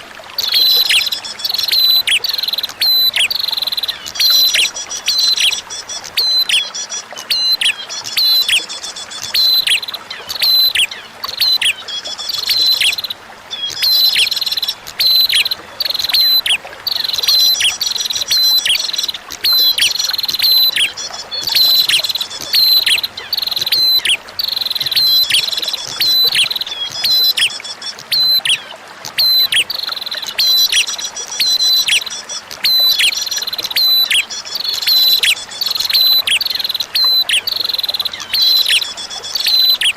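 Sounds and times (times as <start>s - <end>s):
faint running water: 0.0s - 39.9s
bird chirping rapidly: 13.7s - 28.6s, 29.2s - 39.9s.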